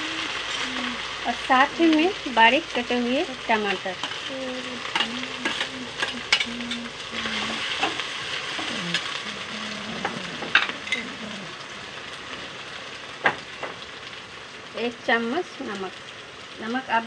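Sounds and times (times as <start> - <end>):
tomatoes sizzling in oil: 0.0 - 17.0
metal spatula scraping a pan: 4.9 - 9.1, 10.0 - 11.2.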